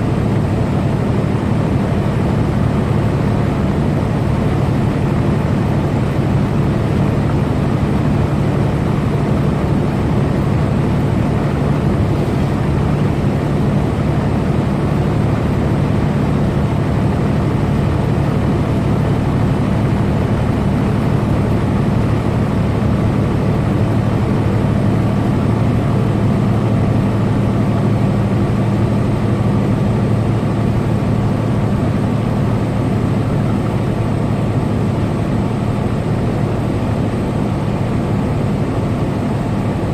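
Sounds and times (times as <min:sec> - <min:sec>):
road and tyre noise: 0:00.0 - 0:39.9
truck engine hum: 0:00.0 - 0:39.9.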